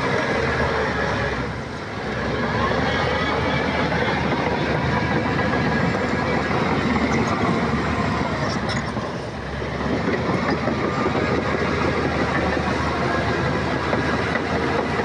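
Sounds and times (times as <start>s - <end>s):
bulldozer diesel engine: 0.0s - 15.0s
steel tracks clattering: 0.0s - 15.0s.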